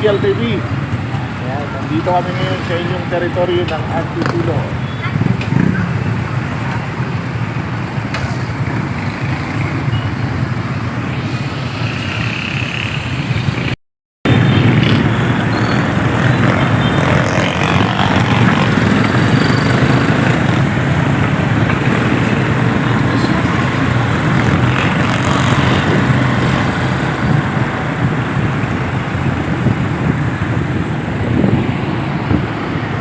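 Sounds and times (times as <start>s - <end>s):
motorcycle engine: 0.0s - 33.0s
road noise: 0.0s - 33.0s
wind noise: 13.4s - 33.0s.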